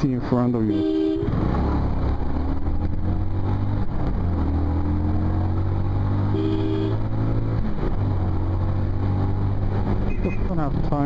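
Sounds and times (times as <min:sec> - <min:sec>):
vehicle horn: 0:00.7 - 0:01.4, 0:06.3 - 0:07.1.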